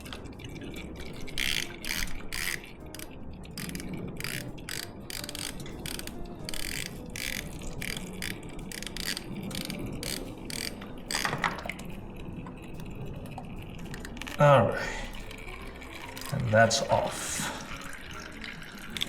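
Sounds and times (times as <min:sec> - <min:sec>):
ratchet clicking: 0:01.1 - 0:11.5.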